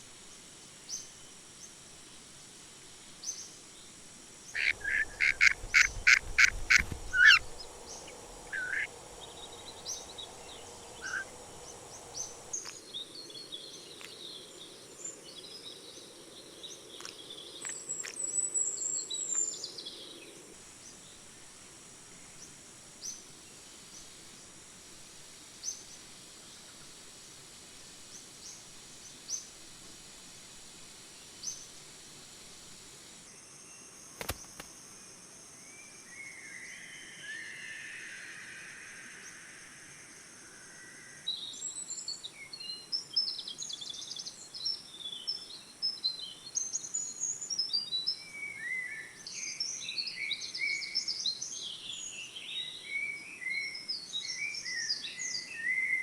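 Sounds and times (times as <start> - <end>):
high insect drone: 0.0 - 56.0
chorus of bird calls: 4.6 - 12.7
sharp click: 34.2 - 34.7.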